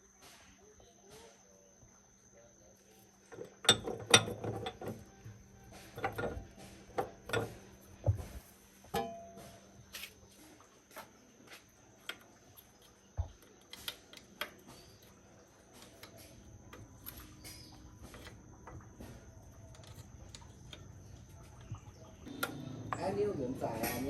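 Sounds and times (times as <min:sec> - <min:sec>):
faint low hum: 0:00.0 - 0:24.0
light clicks and taps on metal: 0:03.2 - 0:09.6, 0:11.9 - 0:23.1.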